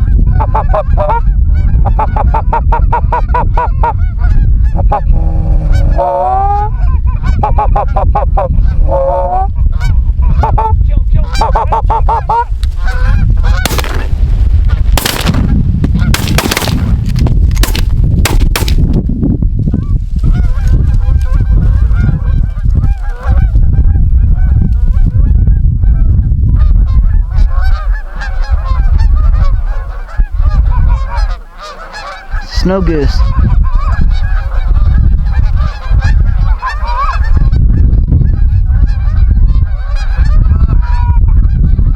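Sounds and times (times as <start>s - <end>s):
wind rumble on microphone: 0.0s - 41.9s
geese honking in a flock: 0.1s - 14.1s, 19.8s - 41.9s
shotgun blasts: 13.6s - 14.3s, 14.9s - 19.0s.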